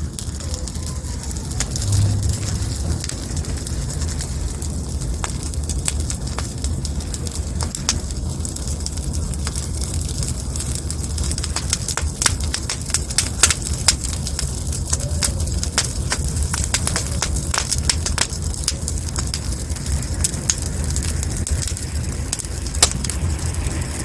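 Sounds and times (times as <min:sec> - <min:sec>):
steady low rumble: 0:00.0 - 0:24.0
wood fire crackling: 0:00.0 - 0:24.0.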